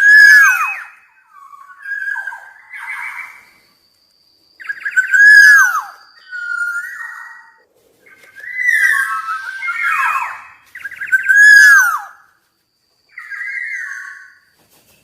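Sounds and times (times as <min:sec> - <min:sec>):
bird singing fluty whistles: 0:04.6 - 0:12.2, 0:13.1 - 0:14.4.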